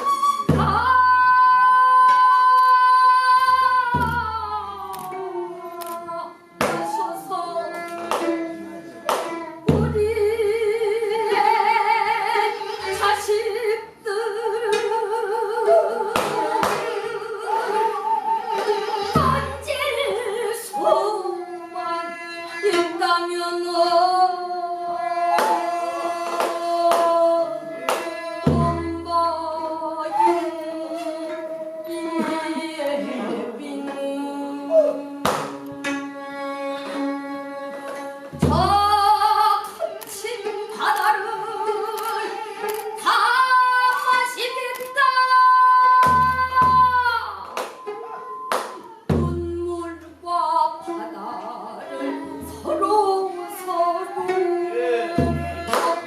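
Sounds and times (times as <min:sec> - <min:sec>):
person singing long wavering notes: 0:13.5 - 0:39.5.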